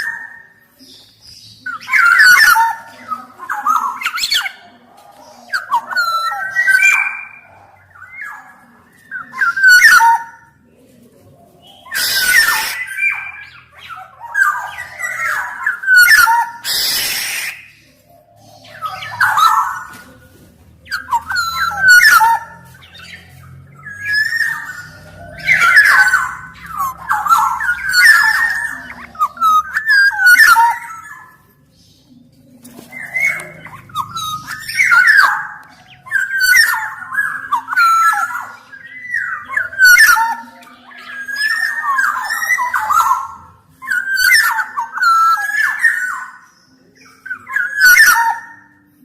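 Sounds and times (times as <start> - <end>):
bird singing fluty whistles: 14.4 - 17.8.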